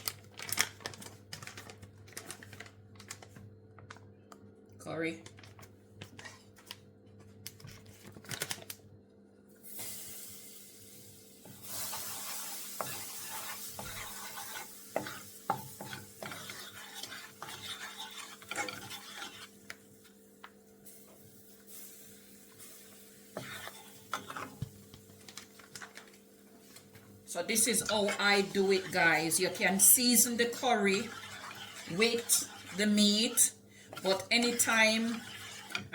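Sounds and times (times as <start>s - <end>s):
spices sizzling in hot oil: 9.6s - 35.9s
spoon scraping a pot: 11.8s - 19.8s, 23.4s - 24.6s, 27.4s - 35.9s.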